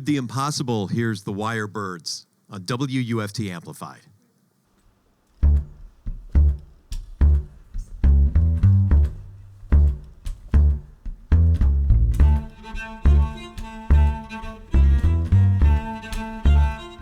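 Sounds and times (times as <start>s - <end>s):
folk string band music: 5.4s - 17.0s
upright bass plucking: 5.4s - 17.0s.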